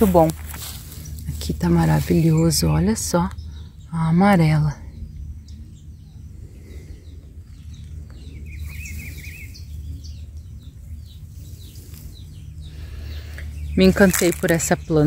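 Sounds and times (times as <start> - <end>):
bird warbling trill: 0.0 - 15.0
low steady hum: 0.0 - 15.0
small birds chirping: 0.0 - 15.0.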